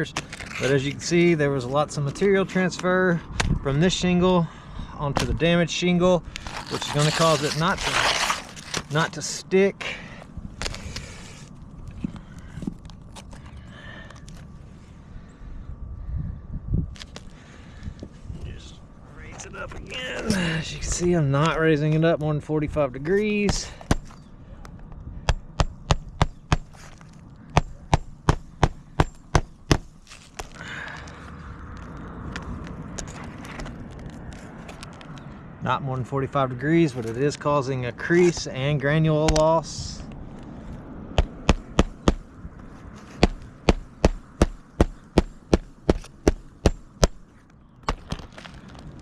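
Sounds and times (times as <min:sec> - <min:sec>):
hammer striking nail: 0:27.5 - 0:29.9, 0:41.2 - 0:42.2, 0:43.2 - 0:47.2.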